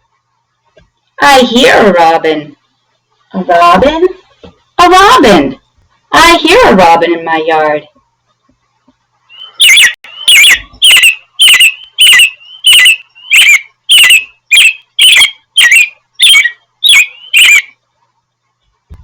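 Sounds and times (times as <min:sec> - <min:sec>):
robin call notes: 0:09.3 - 0:17.7.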